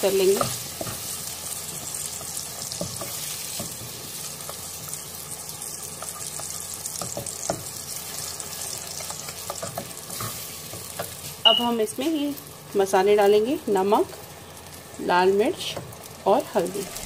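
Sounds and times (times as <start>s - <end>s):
paste sizzling in hot oil: 0.0s - 12.9s.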